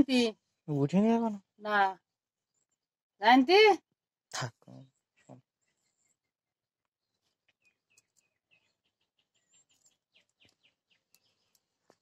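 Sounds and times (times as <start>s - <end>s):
bird chirping faintly: 7.0s - 12.0s.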